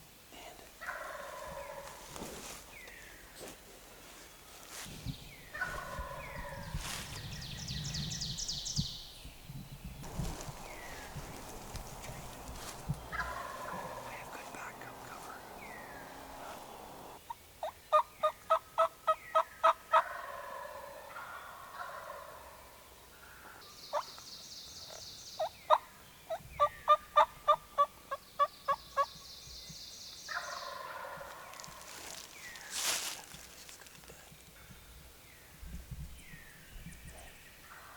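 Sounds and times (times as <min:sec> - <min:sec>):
turkey yelping: 0:10.5 - 0:14.3.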